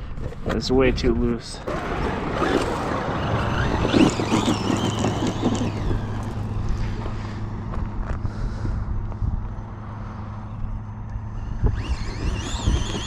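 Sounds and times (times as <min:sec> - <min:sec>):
electric motor whining: 0:01.6 - 0:07.8, 0:10.4 - 0:13.0
tyres and drivetrain rushing: 0:01.6 - 0:13.0.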